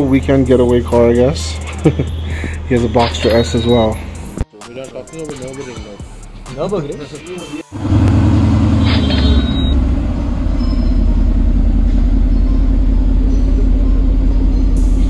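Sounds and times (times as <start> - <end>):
car engine idling: 7.6 - 15.0.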